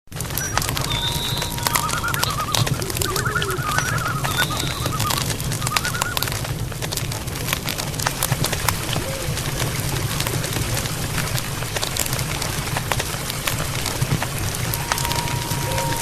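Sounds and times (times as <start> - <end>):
clicks and crackles: 0.1 - 16.0
high thin whistle: 0.4 - 5.2, 14.7 - 16.0
birds calling: 0.4 - 6.3, 14.6 - 16.0.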